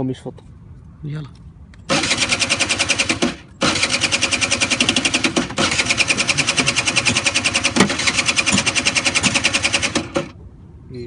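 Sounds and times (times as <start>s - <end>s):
small petrol engine running: 1.9s - 10.4s.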